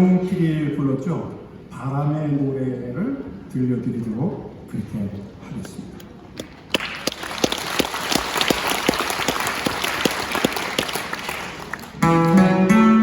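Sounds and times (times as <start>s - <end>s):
audience applauding: 6.4s - 12.4s
guitars: 12.0s - 13.0s.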